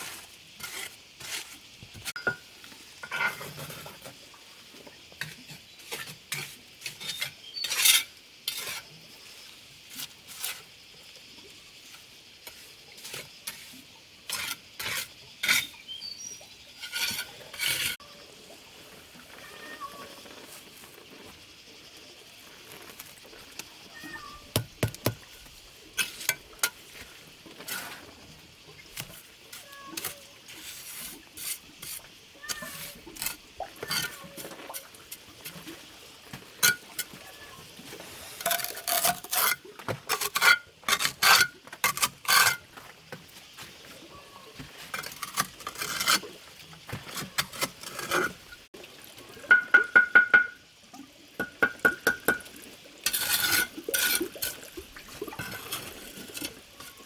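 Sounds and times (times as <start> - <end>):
scraping and scratching: 0.0 - 2.4, 16.7 - 18.0, 22.4 - 28.3, 28.9 - 35.8, 37.9 - 42.8, 44.6 - 48.7, 53.0 - 54.6.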